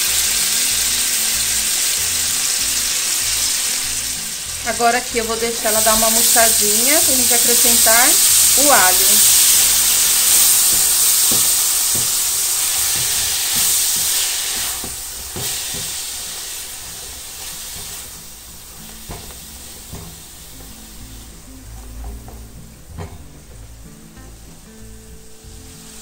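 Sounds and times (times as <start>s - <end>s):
food sizzling in a pan: 0.0s - 26.0s
spatula scraping and tapping pan: 9.2s - 18.2s, 18.8s - 20.4s.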